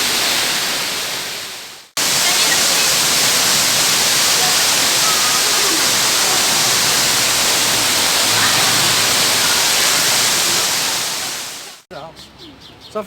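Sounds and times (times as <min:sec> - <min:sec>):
falling water rushing: 0:00.0 - 0:11.8.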